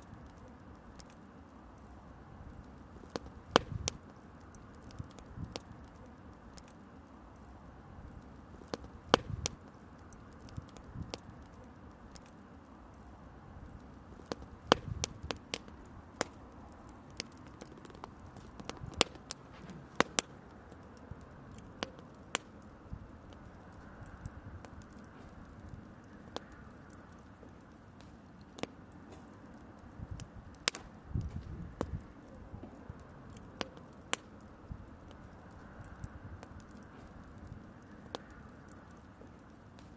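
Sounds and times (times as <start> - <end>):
campfire crackling and popping: 0.0 - 39.9
faint steady hiss: 0.0 - 39.9.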